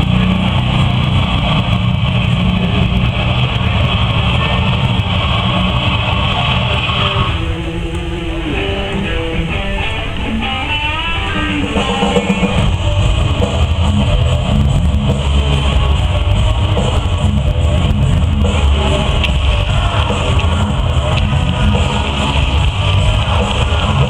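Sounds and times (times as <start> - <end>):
electric guitar bent notes: 0.0 - 24.0
rock music: 0.0 - 24.0.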